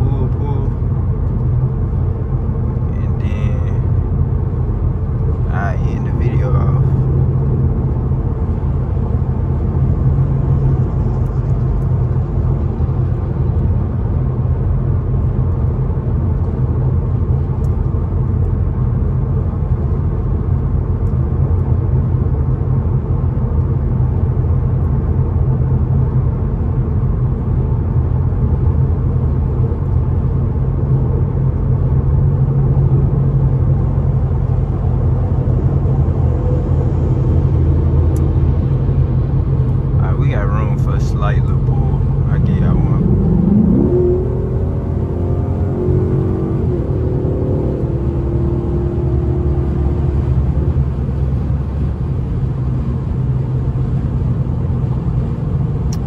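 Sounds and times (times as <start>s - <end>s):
car engine cruising drone: 0.0s - 56.0s
road noise: 0.0s - 56.0s.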